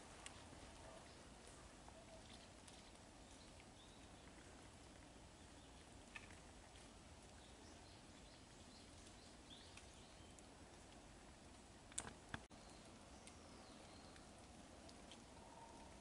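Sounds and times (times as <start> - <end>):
faint bird chirps: 15.3 - 16.0.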